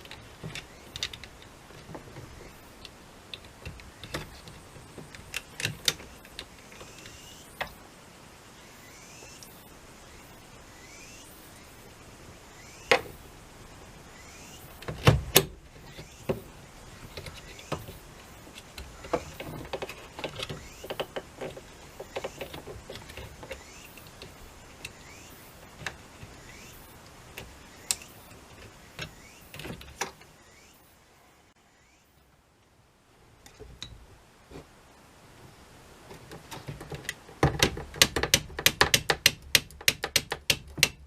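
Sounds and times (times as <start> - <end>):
clicks and knocks on plastic: 36.1 - 41.0.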